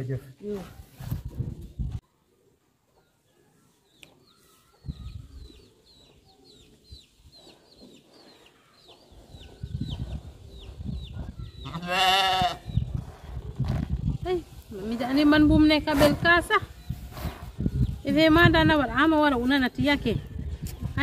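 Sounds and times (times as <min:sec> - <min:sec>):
quavering farm animal call: 0:11.6 - 0:12.8.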